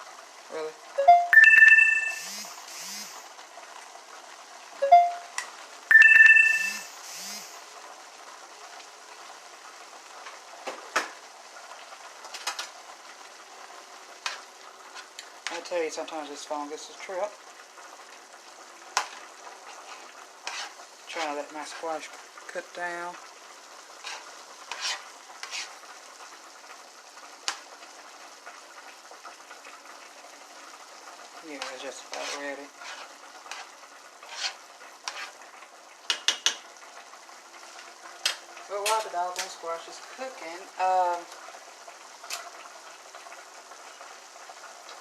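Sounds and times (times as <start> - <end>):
squash sizzling in a pan: 0.0 - 5.9, 6.5 - 45.0
stirring swishes: 19.6 - 21.9, 24.0 - 25.8, 31.6 - 35.4.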